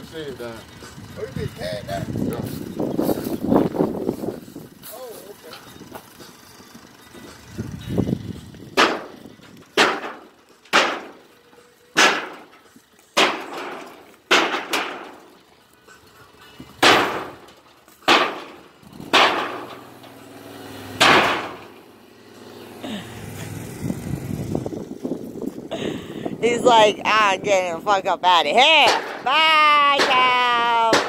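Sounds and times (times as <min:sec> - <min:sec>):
hammer striking tin shed: 0:08.7 - 0:15.4, 0:16.8 - 0:22.0, 0:28.6 - 0:31.0.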